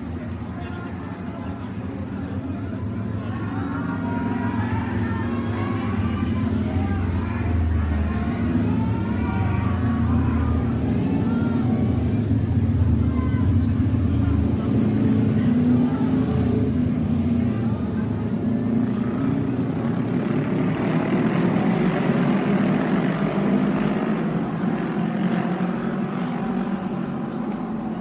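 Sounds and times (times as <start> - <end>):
motorcycles racing past: 3.3 - 28.0.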